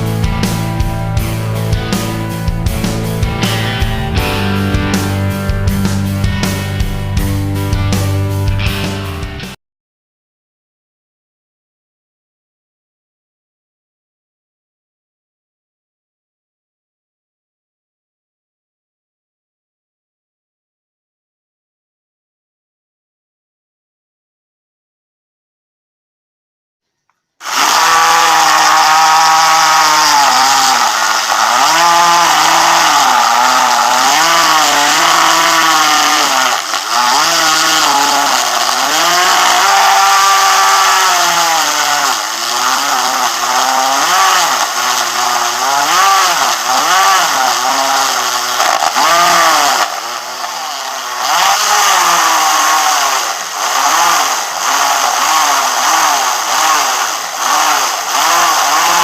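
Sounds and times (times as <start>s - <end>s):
mini lathe motor whine: 27.4s - 29.5s.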